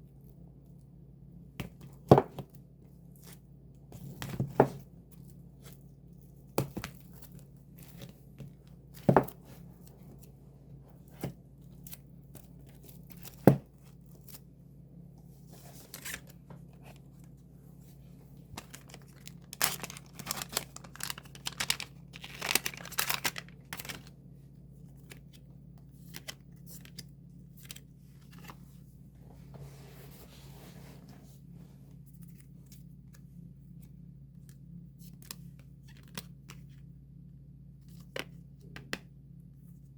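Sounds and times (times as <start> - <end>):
steady low hum: 0.0 - 39.9
plastic wrapping tearing and crinkling: 18.6 - 24.1.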